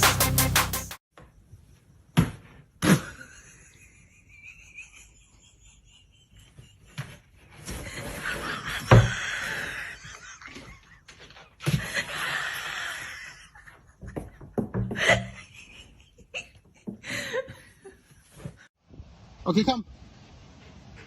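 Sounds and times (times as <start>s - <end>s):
person laughing: 2.8s - 7.2s, 8.0s - 18.0s.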